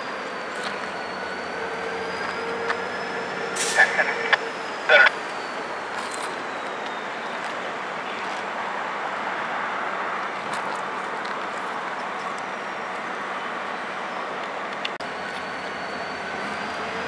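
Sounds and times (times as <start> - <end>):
wheel squeals: 0.0 - 8.4, 15.0 - 17.0
train cars rolling on rails: 0.0 - 17.0.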